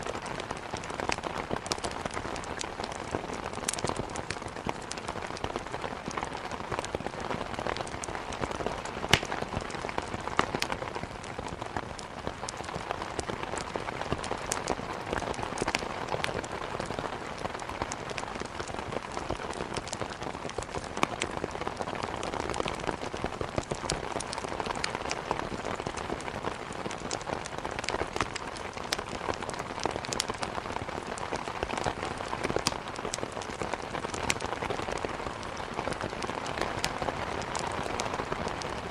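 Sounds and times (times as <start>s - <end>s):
heavy rain: 0.0s - 38.9s
wood crackling in fireplace: 0.0s - 38.9s.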